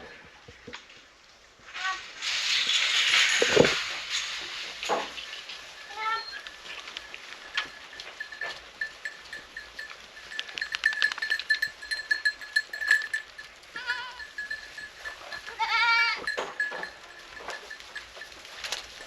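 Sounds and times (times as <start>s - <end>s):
goat bleating: 13.7s - 14.3s, 15.4s - 16.3s.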